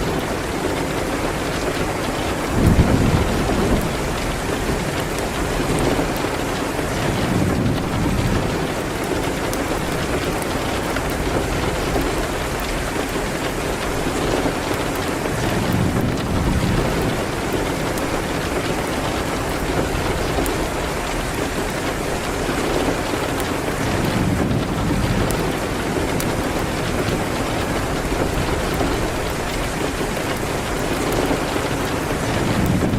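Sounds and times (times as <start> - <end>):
fireplace fire crackling: 0.0 - 32.9
rain on a window: 0.0 - 32.9.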